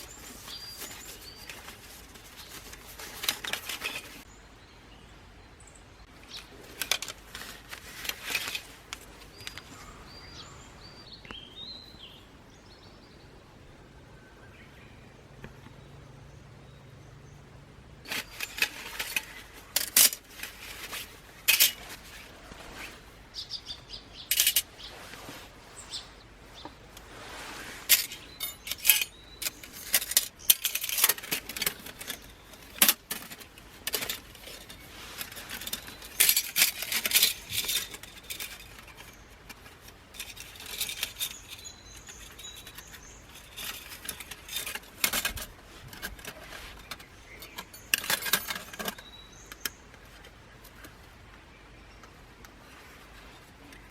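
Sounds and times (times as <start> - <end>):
metal camp gear clinking: 0.0 - 4.2, 6.2 - 11.2, 18.0 - 51.0.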